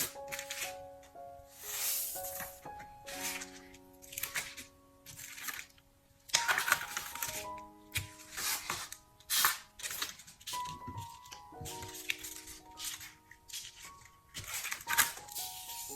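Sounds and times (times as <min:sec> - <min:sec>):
soft background music: 0:00.0 - 0:15.9.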